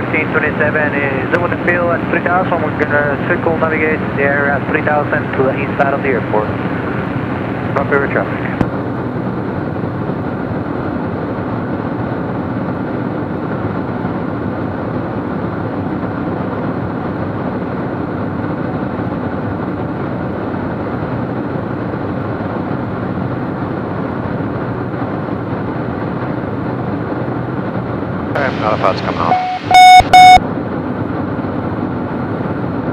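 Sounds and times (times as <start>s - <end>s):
airplane engine and propeller drone: 0.0s - 32.9s.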